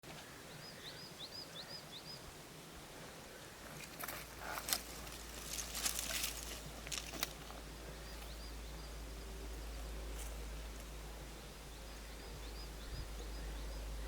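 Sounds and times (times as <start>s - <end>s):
bird chirping: 0.1s - 2.3s, 3.3s - 14.0s
rustling and crunching: 3.6s - 8.4s
low steady rumble: 4.2s - 14.0s.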